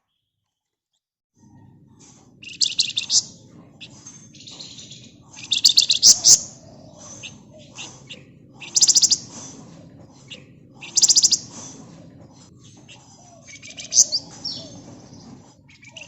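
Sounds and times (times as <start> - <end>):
soft bird chirps: 1.4 - 16.0
bird fast high trilling: 2.4 - 3.4, 4.8 - 9.4, 10.8 - 11.8, 13.0 - 14.8.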